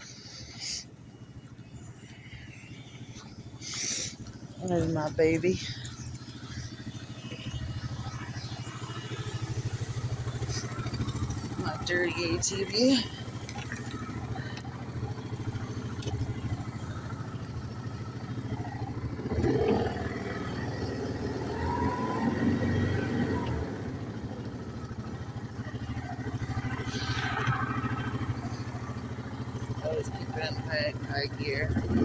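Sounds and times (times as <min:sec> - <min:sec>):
atv engine idling: 0:00.0 - 0:32.0.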